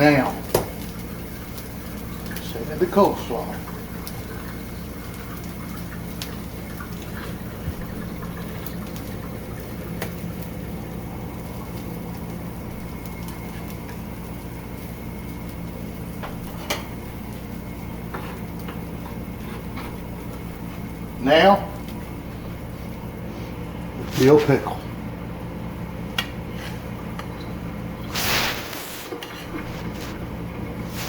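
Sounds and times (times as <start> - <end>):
kitchen background hum: 0.0 - 31.0.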